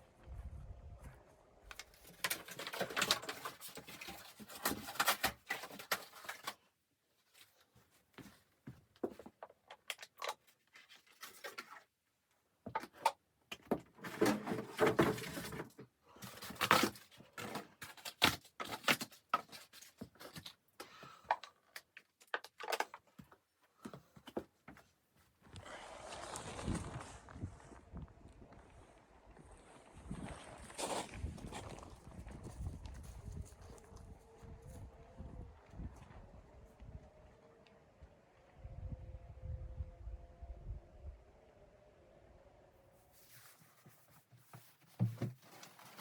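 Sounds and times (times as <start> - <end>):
rustling scrapes: 25.4 - 28.0, 43.0 - 46.0.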